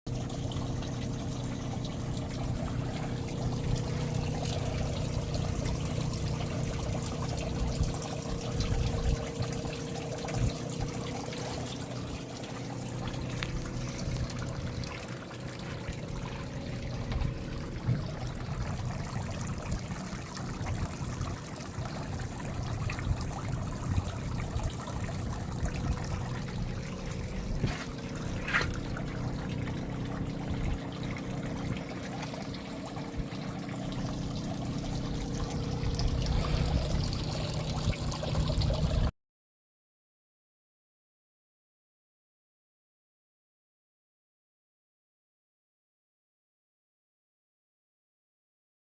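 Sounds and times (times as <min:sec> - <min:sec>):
low motor hum: 0:00.1 - 0:39.1
water splashing from outlet: 0:00.1 - 0:39.1.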